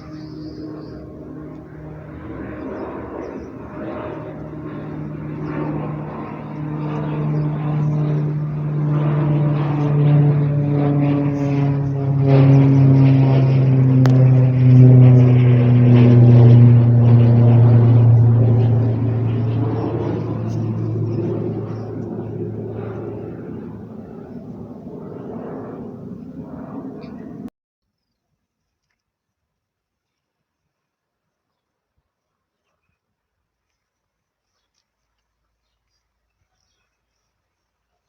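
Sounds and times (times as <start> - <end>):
aircraft engine drone: 0.0 - 27.5.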